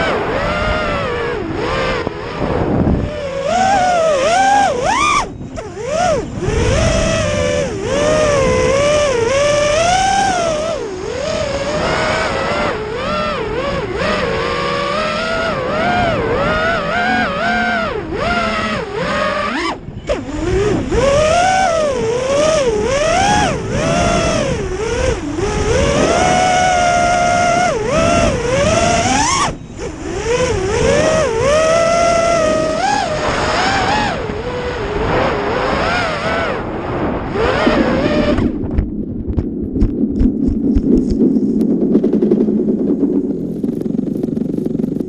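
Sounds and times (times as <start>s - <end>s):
drone motors whining: 0.0s - 45.0s
rough noise with clicks: 37.4s - 42.5s.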